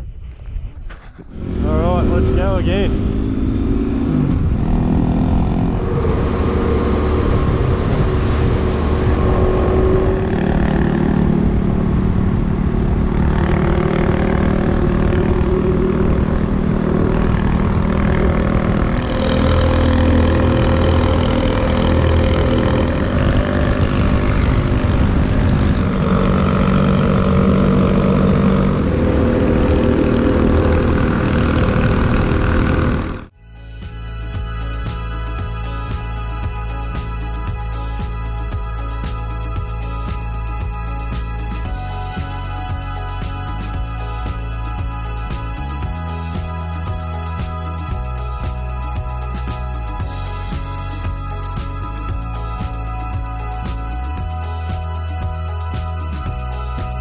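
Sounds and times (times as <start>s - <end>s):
motorcycle engine running: 1.3s - 57.0s.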